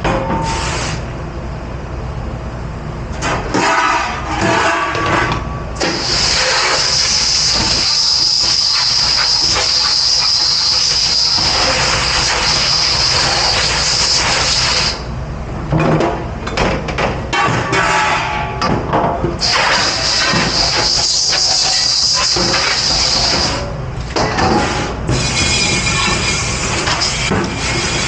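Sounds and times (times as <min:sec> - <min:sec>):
sprayer blasting water: 0:05.8 - 0:15.1, 0:19.4 - 0:23.7.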